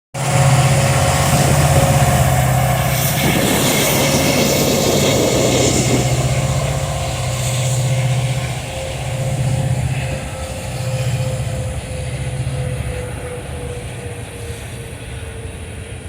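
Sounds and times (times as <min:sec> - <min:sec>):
diesel locomotive engine drone: 0:00.1 - 0:16.0
rushing noise: 0:00.2 - 0:15.8.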